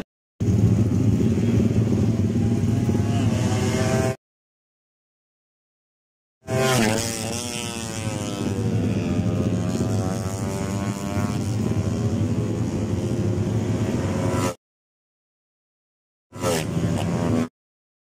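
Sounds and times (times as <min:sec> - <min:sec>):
racing motorcycle engine revving: 0:00.0 - 0:04.2, 0:06.4 - 0:14.6, 0:16.4 - 0:17.5.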